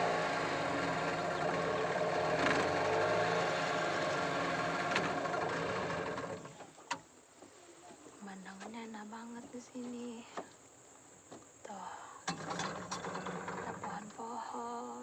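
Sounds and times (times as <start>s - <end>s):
outboard motor running: 0.0s - 7.0s, 12.3s - 14.3s.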